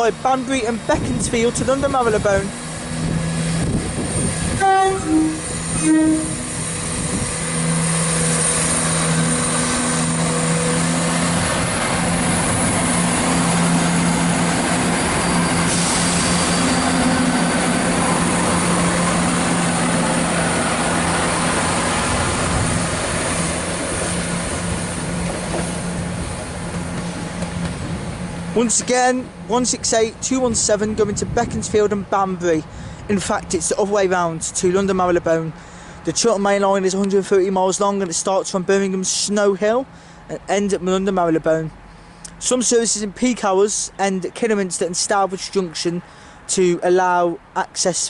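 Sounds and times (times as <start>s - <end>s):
train diesel engines running: 0.0s - 48.0s
train horn notes: 4.6s - 6.7s.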